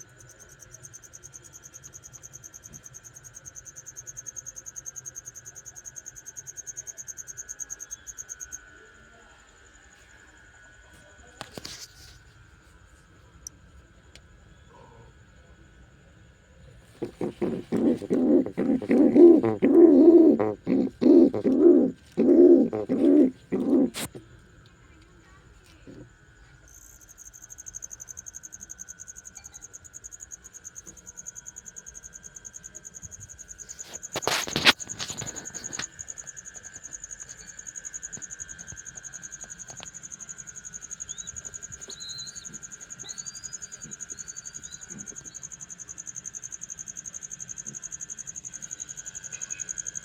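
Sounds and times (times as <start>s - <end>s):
crickets trilling: 0.0s - 50.0s
faint high chirps: 26.6s - 33.8s, 38.6s - 50.0s.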